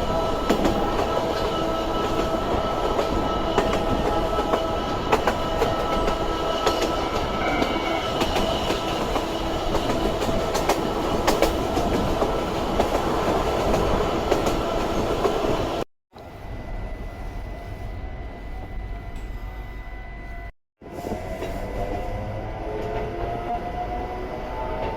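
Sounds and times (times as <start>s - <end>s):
train wheel and track noise: 0.0s - 24.9s.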